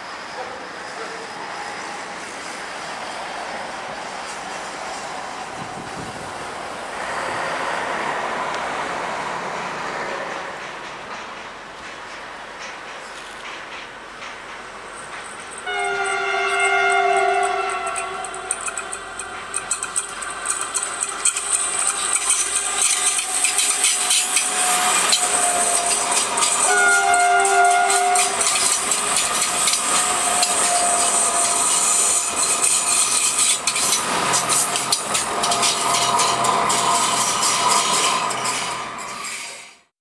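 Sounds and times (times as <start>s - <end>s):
train wheels rattling: 9.5s - 39.7s
train horn chord: 15.6s - 19.2s, 26.5s - 28.7s.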